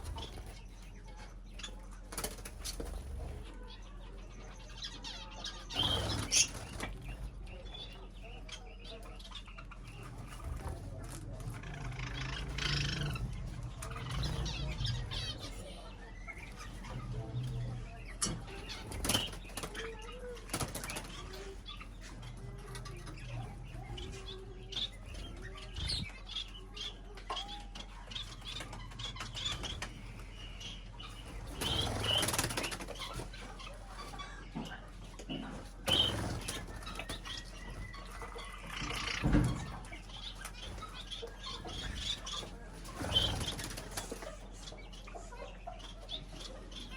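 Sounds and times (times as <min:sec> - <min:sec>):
small birds flapping wings: 0:02.0 - 0:03.5, 0:05.6 - 0:07.5, 0:18.4 - 0:26.2, 0:31.0 - 0:34.3, 0:35.5 - 0:44.5
high bird chirps: 0:23.0 - 0:34.4.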